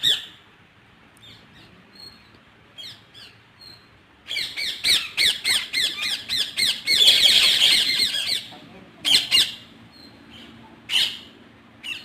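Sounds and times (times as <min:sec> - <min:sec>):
parrots squawking: 0:04.3 - 0:12.0.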